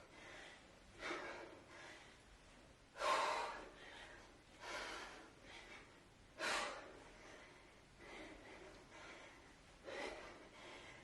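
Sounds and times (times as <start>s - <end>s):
woman breathing heavily: 0.0s - 11.0s.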